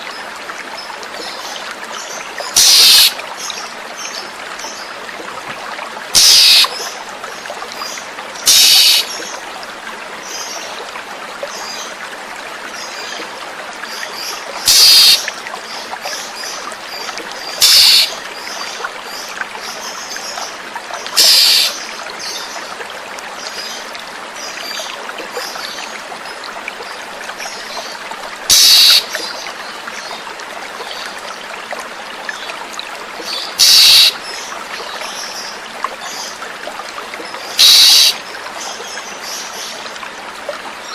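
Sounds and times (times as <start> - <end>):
running water: 0.0 - 40.9
harsh bird calls: 2.6 - 3.2, 6.2 - 6.7, 8.5 - 9.1, 14.7 - 15.3, 17.6 - 18.2, 21.2 - 21.8, 28.5 - 29.1, 33.4 - 34.2, 37.6 - 38.2.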